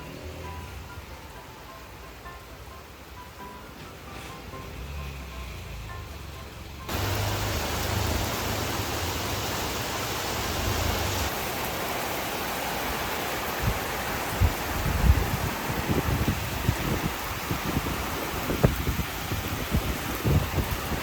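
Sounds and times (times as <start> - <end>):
heavy rain pouring: 6.7 - 21.0.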